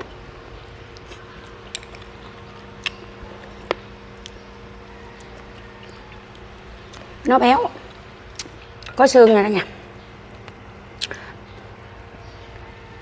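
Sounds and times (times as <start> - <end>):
close-miked chewing: 0.0 - 9.0, 10.3 - 13.0
faint steady hum: 0.0 - 13.0.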